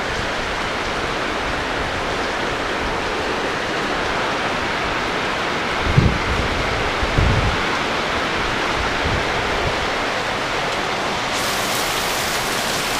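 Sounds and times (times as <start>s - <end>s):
heavy rain pouring: 0.0s - 12.9s
wind thumps on microphone: 5.8s - 7.6s
water streaming off roof: 9.9s - 12.9s.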